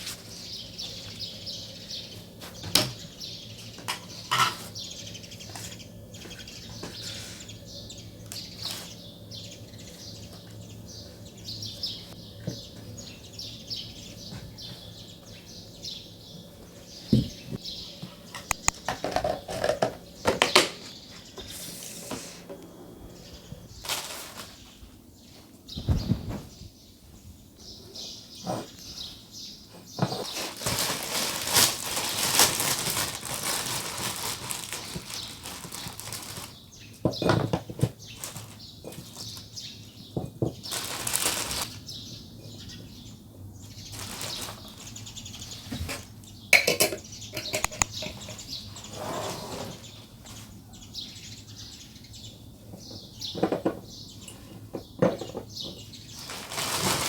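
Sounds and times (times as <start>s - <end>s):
rustling and handling noises: 0.0s - 1.2s, 8.3s - 9.0s, 23.5s - 26.7s, 28.4s - 41.8s, 43.6s - 46.2s, 54.6s - 57.0s.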